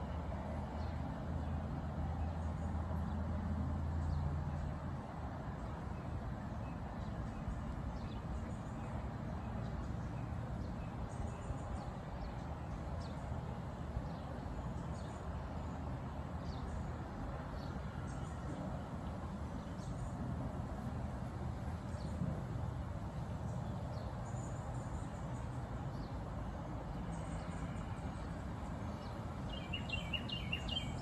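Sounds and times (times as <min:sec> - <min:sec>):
low engine hum: 0:00.0 - 0:31.0
bird chirps: 0:29.5 - 0:31.0.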